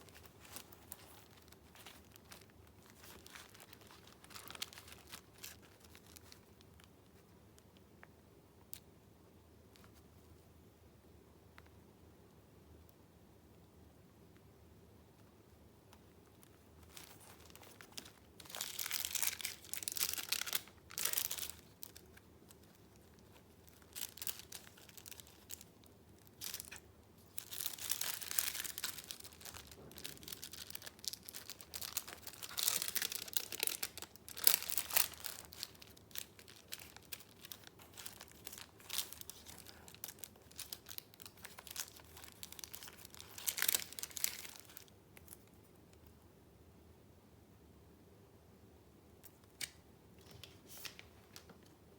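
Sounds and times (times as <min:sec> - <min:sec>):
paper rustling and crinkling: 0:00.0 - 0:06.9, 0:16.3 - 0:45.5, 0:50.2 - 0:51.7.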